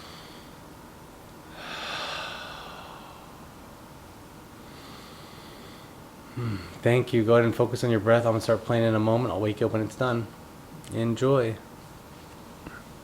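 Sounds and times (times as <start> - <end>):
man breathing through nose: 0.0 - 0.6, 1.5 - 3.9, 4.6 - 6.8
faint hiss: 0.0 - 13.0.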